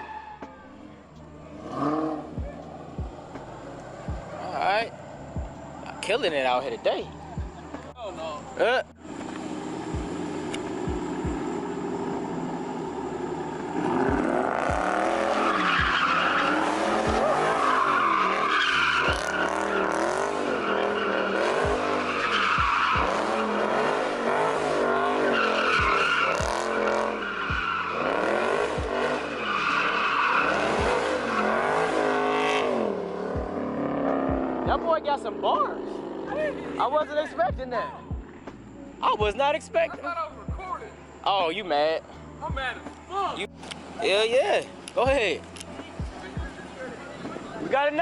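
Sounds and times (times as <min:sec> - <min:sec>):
tyres squealing: 0:00.0 - 0:09.3, 0:10.6 - 0:33.0
car engine revving: 0:00.0 - 0:40.3.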